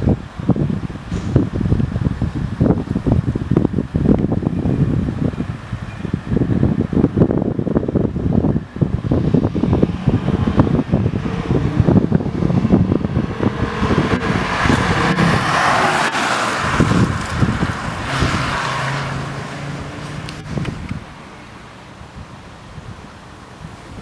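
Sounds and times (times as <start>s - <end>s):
car engine rumble passing: 0.0s - 22.2s
tyre noise: 6.9s - 21.1s.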